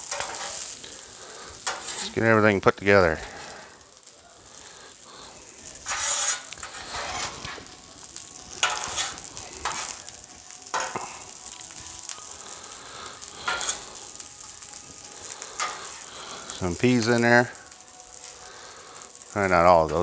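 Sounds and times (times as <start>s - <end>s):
rice sizzling on a griddle: 0.0s - 20.0s
spatula scraping a griddle: 0.0s - 20.0s.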